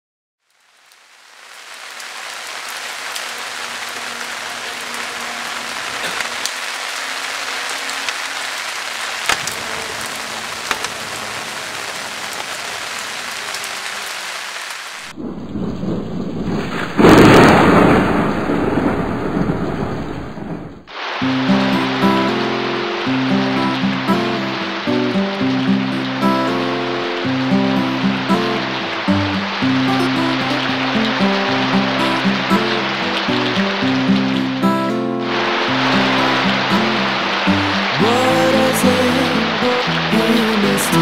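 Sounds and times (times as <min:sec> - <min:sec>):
steady rain: 0:00.4 - 0:41.0
thunder rumble: 0:15.0 - 0:22.4
sharp drips: 0:21.2 - 0:41.0.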